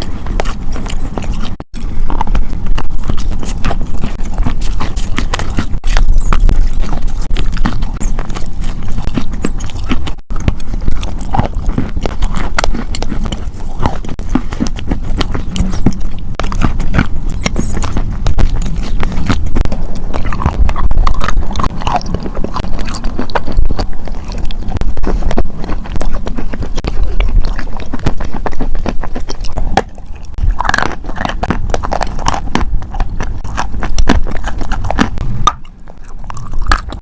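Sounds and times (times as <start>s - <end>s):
crunchy chewing: 0.0s - 37.0s.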